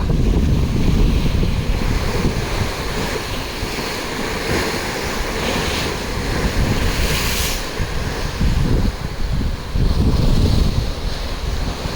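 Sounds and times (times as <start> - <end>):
waves slapping against ship hull: 0.0 - 11.9
wind buffeting microphone: 0.0 - 11.9.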